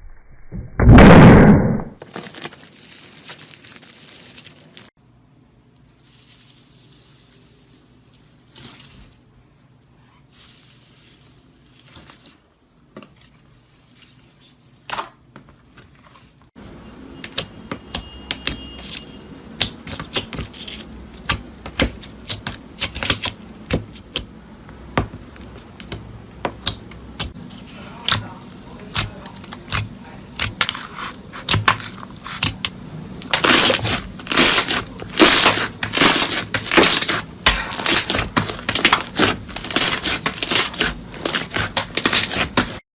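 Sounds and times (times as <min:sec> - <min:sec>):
crunchy material crackling: 0:02.0 - 0:05.0, 0:33.3 - 0:42.8.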